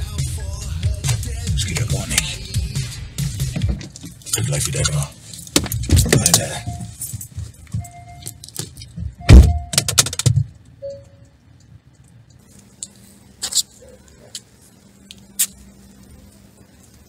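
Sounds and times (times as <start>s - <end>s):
car door slamming: 3.4s - 4.2s, 9.2s - 10.5s
repeating warning beep: 6.4s - 7.0s, 7.8s - 8.4s, 9.1s - 9.9s, 10.8s - 11.3s.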